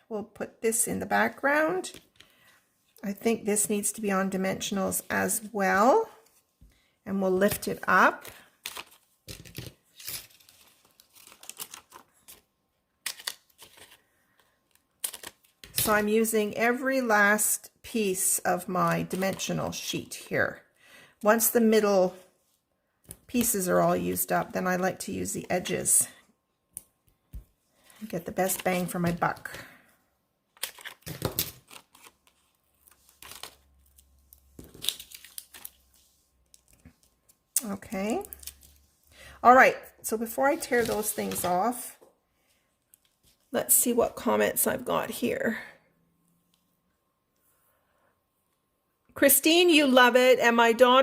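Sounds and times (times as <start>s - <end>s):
paper and plastic rustling: 13.1s - 15.5s, 40.5s - 41.8s.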